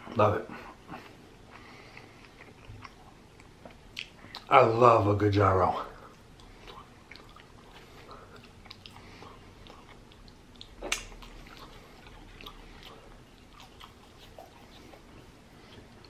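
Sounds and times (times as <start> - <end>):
chewing french fries: 0.0 - 5.0, 5.7 - 16.0
wet mouth clicks: 8.3 - 12.8
mouth smack: 10.8 - 11.2.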